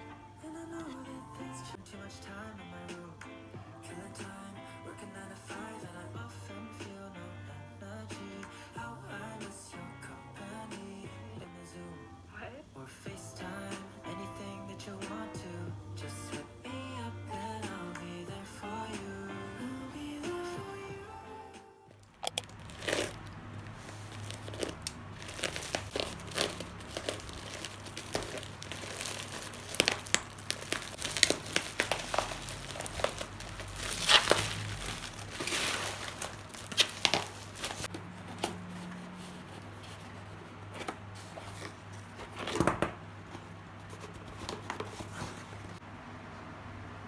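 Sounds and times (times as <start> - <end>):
packaging crinkling and tearing: 22.0 - 38.0.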